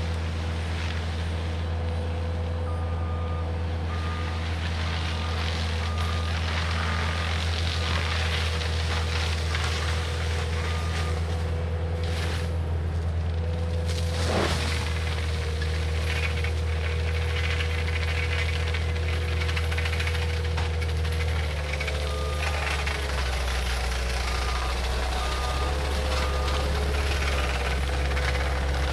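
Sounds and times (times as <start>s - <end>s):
diesel engine running: 0.0s - 28.9s
backup alarm beeping: 22.0s - 28.2s.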